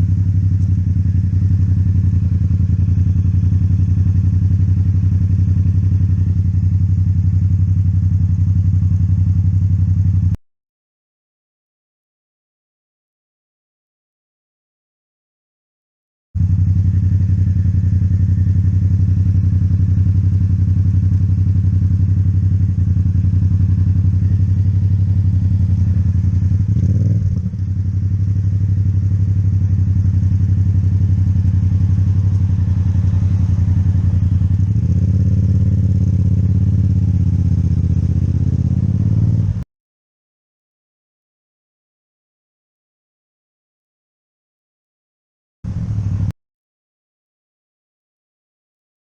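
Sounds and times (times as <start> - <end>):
motorcycle engine running: 0.0 - 10.4, 16.4 - 39.6, 45.7 - 46.3.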